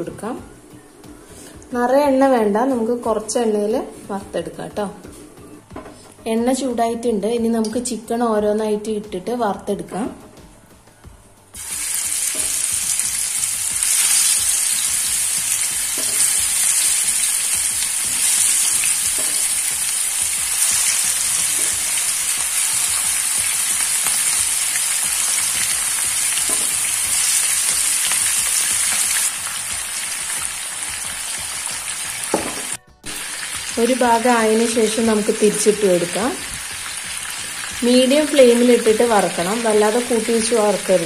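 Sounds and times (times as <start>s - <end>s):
chicken sizzling in hot oil: 11.6s - 41.0s.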